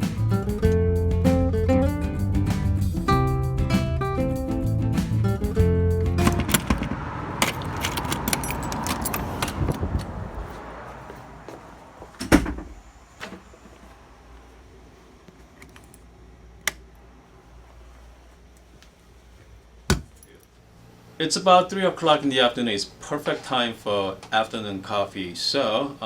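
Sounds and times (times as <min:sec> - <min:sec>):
jingling clattering handling noise: 0:06.2 - 0:10.6.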